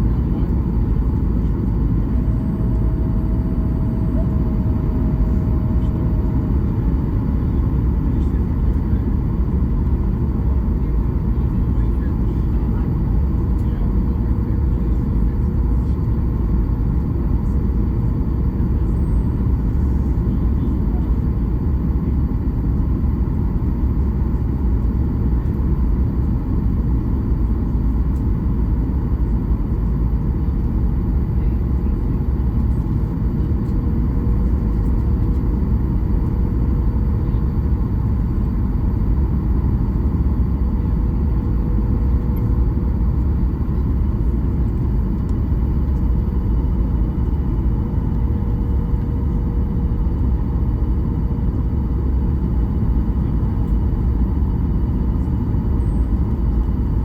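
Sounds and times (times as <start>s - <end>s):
airplane cabin engine rumble: 0.0s - 57.0s
faint steady tone: 2.0s - 8.2s.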